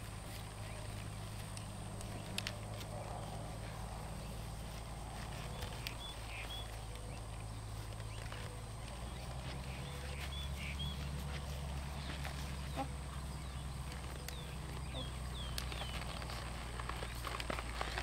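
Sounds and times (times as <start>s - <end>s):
bird chirps: 5.4s - 17.3s.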